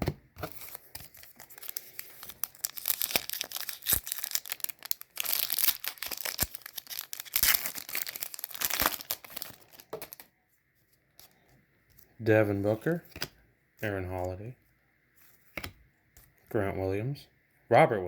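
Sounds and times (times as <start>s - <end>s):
plastic wrapper crinkling and tearing: 0.5s - 10.3s.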